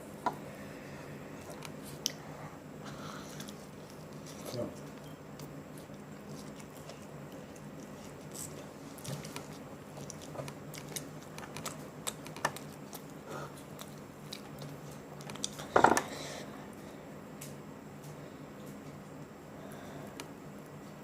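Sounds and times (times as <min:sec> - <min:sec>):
chewing crunches: 0:03.3 - 0:15.7.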